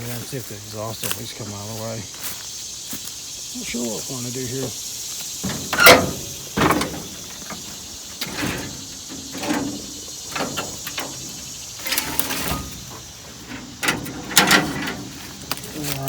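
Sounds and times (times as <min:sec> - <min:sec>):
insects chirring: 0:00.0 - 0:16.0
metal clunks and scrapes: 0:05.4 - 0:15.7.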